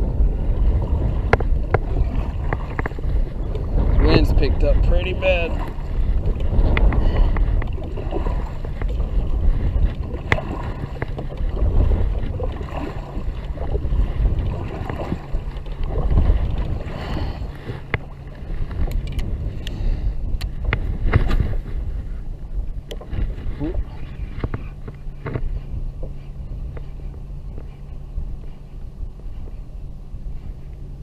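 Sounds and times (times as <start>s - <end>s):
wind buffeting microphone: 0.0s - 31.0s
clicks and knocks from kayak gear: 1.2s - 3.6s, 6.2s - 7.9s, 8.6s - 16.9s, 17.6s - 19.8s, 20.4s - 21.8s, 22.8s - 27.8s.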